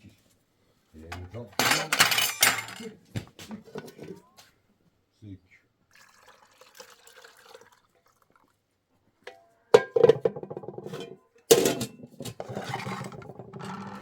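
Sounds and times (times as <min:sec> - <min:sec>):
kitchenware rattling and clinking: 0:01.1 - 0:02.9, 0:09.3 - 0:14.0
kitchenware knocks: 0:01.6 - 0:02.8, 0:09.3 - 0:12.0.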